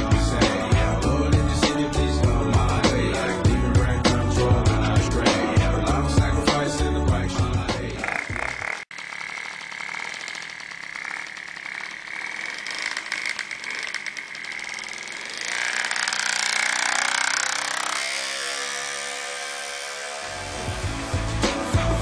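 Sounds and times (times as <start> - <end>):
two-stroke moped engine buzzing: 6.7 - 22.0.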